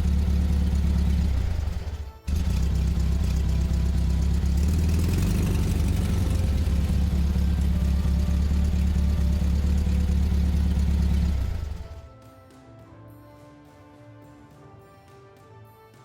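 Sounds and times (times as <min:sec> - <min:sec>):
heavy vehicle engine droning: 0:00.0 - 0:12.1.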